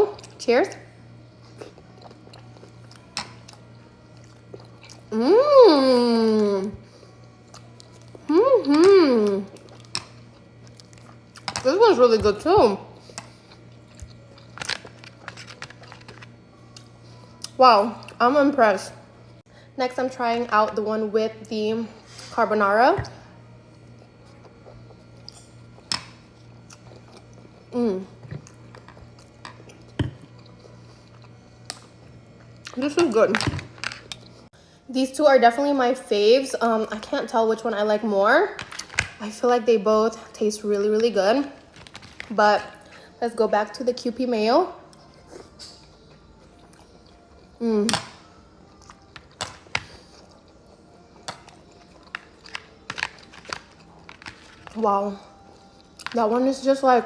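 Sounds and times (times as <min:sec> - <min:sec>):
person chewing with wet smacks: 0:01.5 - 0:03.6, 0:04.2 - 0:05.1, 0:09.5 - 0:11.6
person humming: 0:05.1 - 0:06.8, 0:08.2 - 0:09.5.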